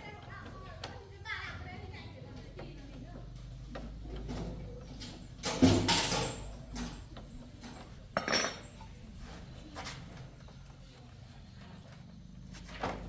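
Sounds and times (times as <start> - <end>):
metal clattering and clinking: 4.2 - 9.1.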